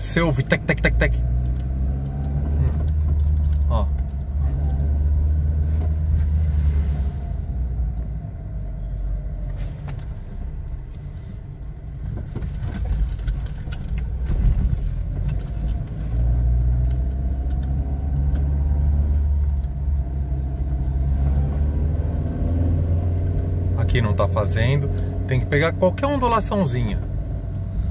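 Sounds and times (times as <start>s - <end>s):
car road and engine rumble: 0.0s - 27.9s
suspension knocking rattle: 0.6s - 5.2s.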